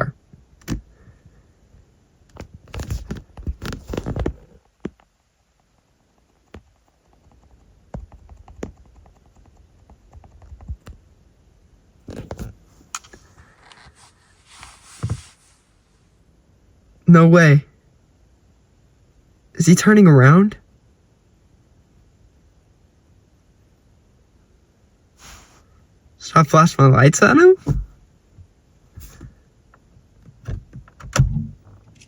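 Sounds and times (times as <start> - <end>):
scattered clicks and knocks: 2.3 - 11.0
quiet scraping and rustling: 12.0 - 16.2, 31.4 - 32.0.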